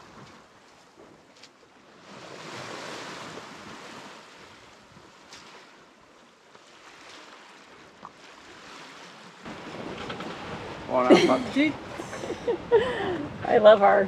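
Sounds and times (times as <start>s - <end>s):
sea water washing past a boat: 0.0s - 14.0s
wind: 0.0s - 14.0s.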